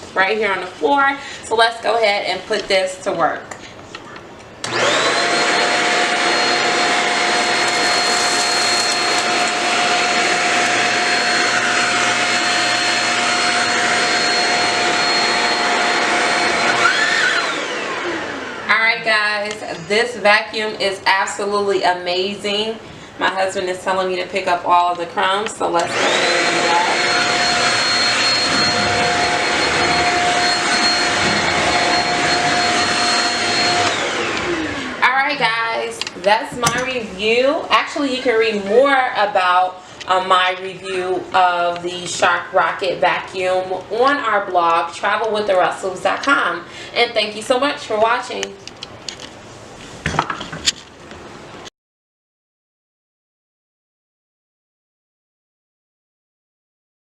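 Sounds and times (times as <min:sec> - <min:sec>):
vacuum cleaner motor whine: 0:04.6 - 0:18.7, 0:25.8 - 0:35.5.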